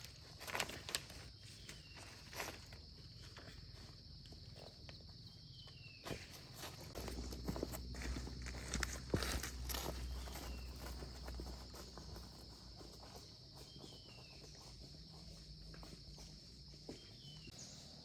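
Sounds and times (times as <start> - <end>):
high insect drone: 0.0 - 18.0
falling bird chirps: 1.2 - 3.4
footsteps: 6.0 - 17.6.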